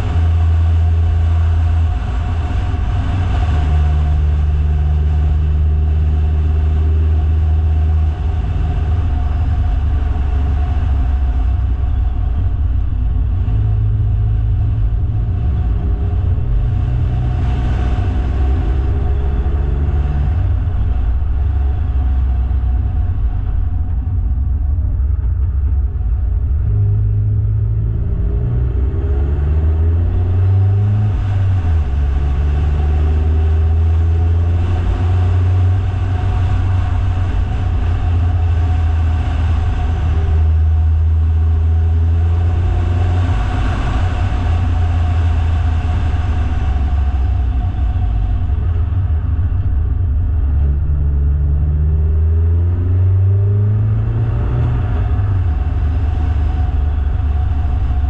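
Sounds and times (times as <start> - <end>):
car engine droning: 0.0 - 58.0
road noise: 0.0 - 58.0.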